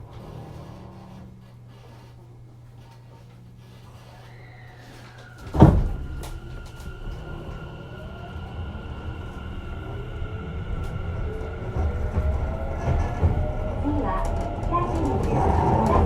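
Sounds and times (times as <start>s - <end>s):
train inverter whine: 3.2s - 16.0s
sliding doors shutting: 3.6s - 16.0s
train wheels rumbling: 3.6s - 16.0s.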